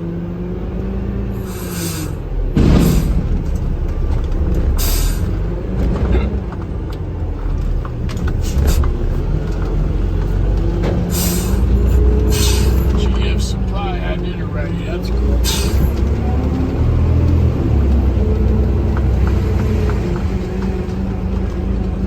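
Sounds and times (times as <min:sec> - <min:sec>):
engine and road drone: 0:00.0 - 0:22.0
short hisses: 0:12.3 - 0:12.9.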